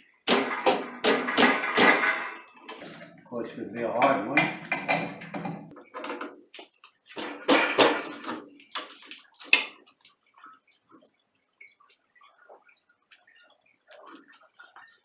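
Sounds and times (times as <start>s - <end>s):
metal clanking and scraping: 0.3s - 6.4s, 7.2s - 8.5s.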